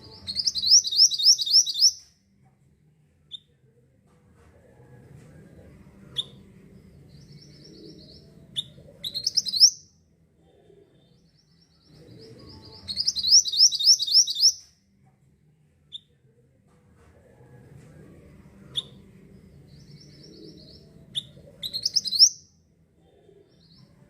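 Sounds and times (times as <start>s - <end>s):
songbird chattering song: 0.0s - 2.0s, 6.2s - 9.9s, 11.0s - 14.7s, 18.8s - 22.5s.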